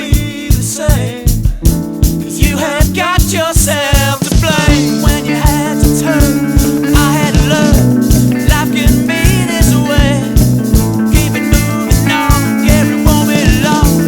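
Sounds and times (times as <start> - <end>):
hard rock band playing: 0.0 - 14.0
bending lead guitar line: 1.4 - 14.0.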